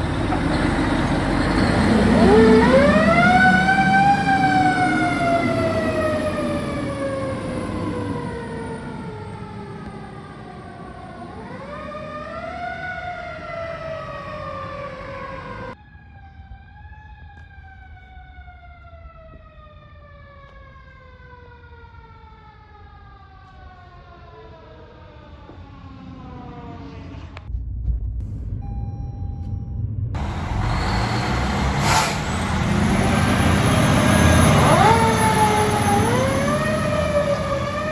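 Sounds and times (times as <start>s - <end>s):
low engine rumble: 0.0s - 11.2s, 26.8s - 37.9s
fire engine siren: 0.0s - 27.5s, 30.1s - 37.9s.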